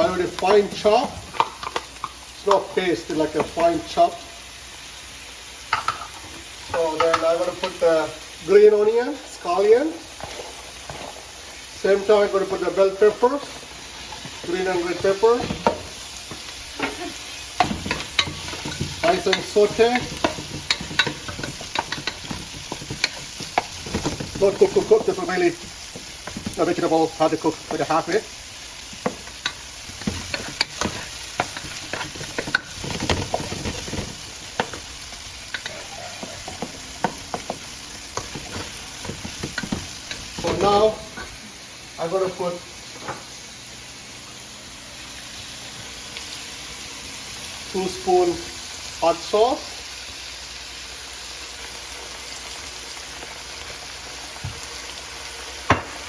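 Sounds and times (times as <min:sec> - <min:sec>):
vegetables sizzling in hot oil: 0:00.0 - 0:56.0
utensil scraping pan: 0:17.6 - 0:28.2, 0:28.9 - 0:40.9.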